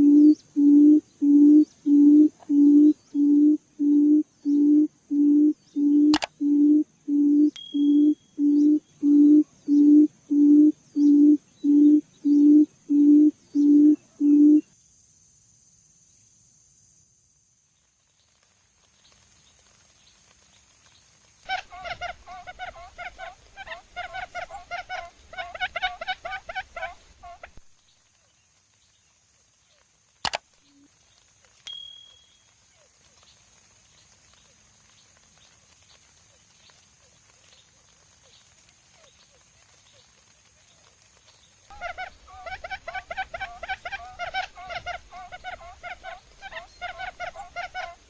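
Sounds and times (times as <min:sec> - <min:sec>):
bird hooting: 0:00.0 - 0:14.6
bird chirping: 0:01.4 - 0:14.6.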